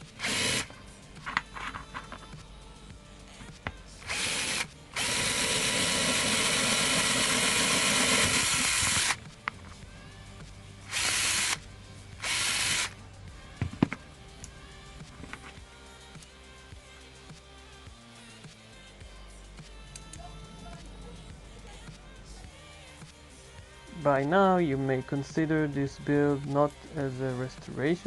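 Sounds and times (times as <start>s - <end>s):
electric hand drill: 0.0s - 0.7s, 4.0s - 9.3s, 10.9s - 13.0s.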